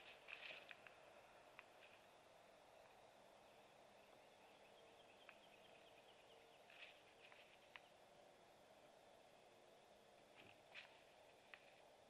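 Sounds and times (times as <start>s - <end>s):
distant bird calls: 0.0s - 8.1s
steady low hiss: 0.0s - 12.0s.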